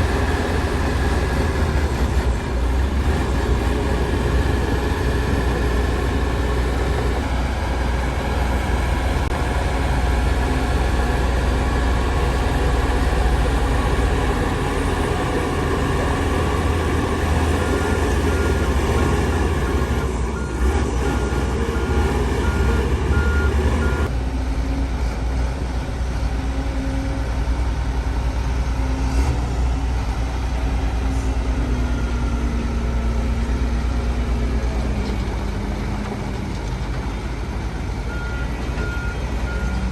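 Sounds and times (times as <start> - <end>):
heavy diesel engines rumbling: 0.0 - 39.9
reversing alarm beeping: 13.6 - 24.1, 38.1 - 39.9.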